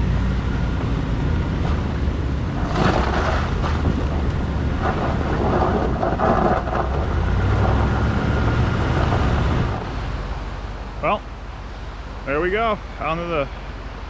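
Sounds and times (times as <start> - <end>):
truck engine and tyre rumble: 0.0 - 14.0.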